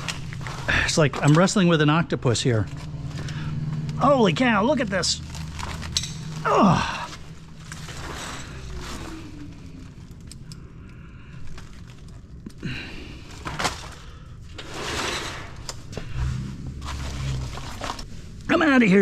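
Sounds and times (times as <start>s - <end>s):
cable scraping and rustling: 0.0s - 18.6s
cable connectors clicking on hardware: 10.0s - 12.6s.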